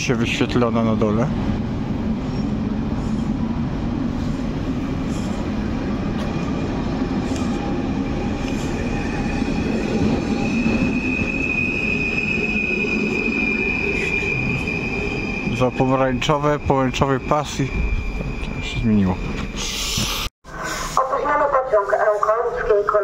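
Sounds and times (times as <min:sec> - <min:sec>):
train wheels rumbling: 0:00.0 - 0:20.2
high steady squeal: 0:08.2 - 0:20.3.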